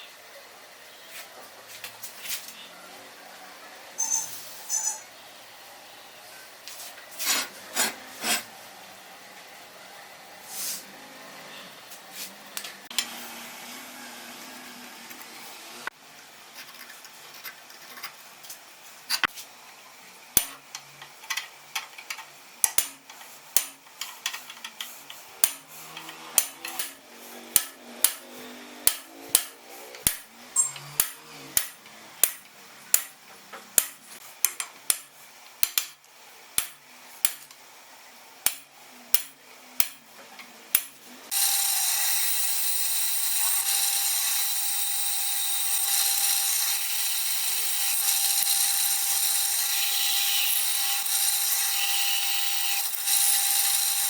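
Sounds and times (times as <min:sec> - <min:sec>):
power tool whining: 0:41.3 - 0:54.0.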